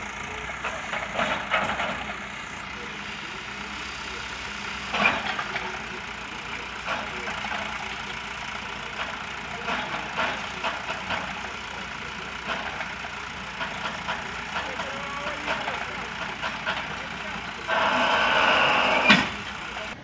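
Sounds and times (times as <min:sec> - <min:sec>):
heavy machinery engine running: 0:00.0 - 0:20.0
clatter: 0:00.3 - 0:03.4, 0:04.9 - 0:17.6.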